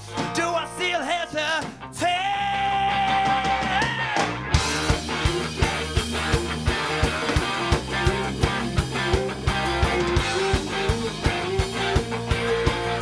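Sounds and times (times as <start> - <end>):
electric guitars: 0.0 - 13.0
rock band playing live: 0.0 - 13.0
drum beat: 3.2 - 13.0.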